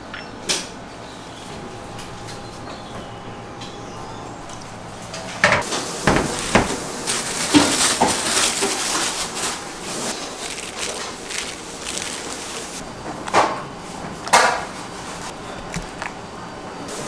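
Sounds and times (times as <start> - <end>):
utensils and dishes clattering: 2.0 - 13.6.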